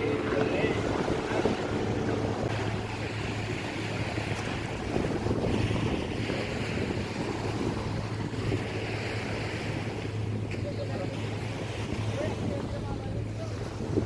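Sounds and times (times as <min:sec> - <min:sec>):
steady low hum: 0:00.0 - 0:06.1
sea water surging: 0:00.0 - 0:14.0
wind buffeting microphone: 0:00.0 - 0:14.0.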